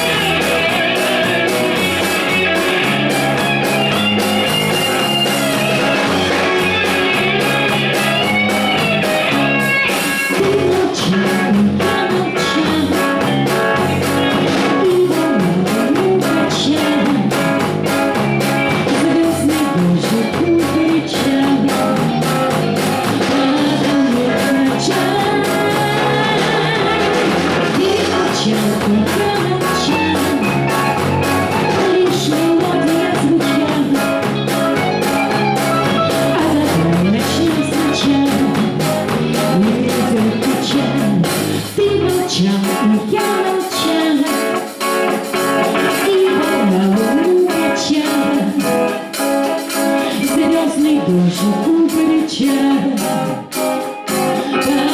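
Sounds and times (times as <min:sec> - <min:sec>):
live pop-rock band playing: 0:00.0 - 0:54.9.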